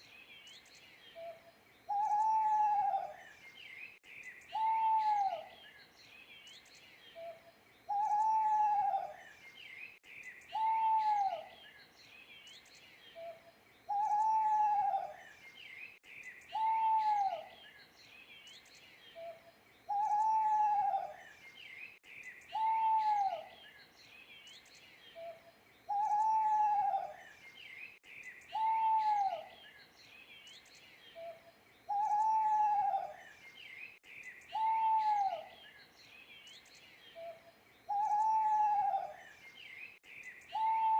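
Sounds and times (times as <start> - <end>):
small birds chirping: 0.0 - 40.9
owl hooting: 1.2 - 3.2, 4.5 - 5.5, 7.9 - 9.2, 10.5 - 11.5, 13.2 - 15.2, 16.5 - 17.5, 19.2 - 21.2, 22.5 - 23.5, 25.2 - 27.2, 28.5 - 29.5, 31.2 - 33.2, 34.5 - 35.6, 37.2 - 39.2, 40.5 - 40.9.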